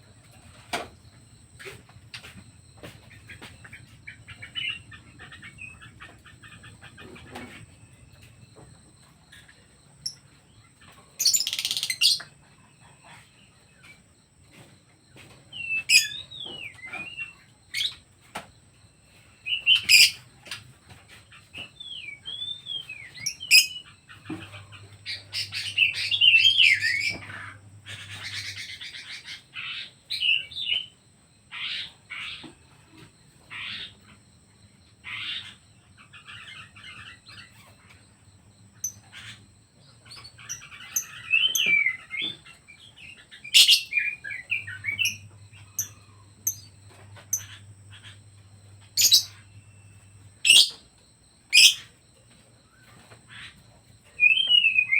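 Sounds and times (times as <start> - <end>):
birds chirping and whistling: 1.6 - 8.3, 10.9 - 12.3, 15.5 - 18.0, 19.5 - 20.6, 21.5 - 30.9, 38.8 - 48.2, 48.8 - 50.9, 51.5 - 51.9, 52.8 - 54.9
sharp loud bird calls: 11.2 - 12.3, 19.5 - 20.3, 38.8 - 48.2, 48.8 - 50.9, 51.5 - 51.9.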